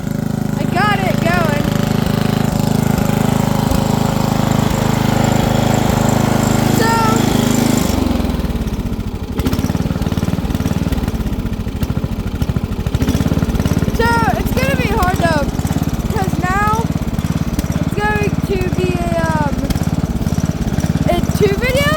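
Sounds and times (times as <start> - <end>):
small engine chugging: 0.0 - 21.9.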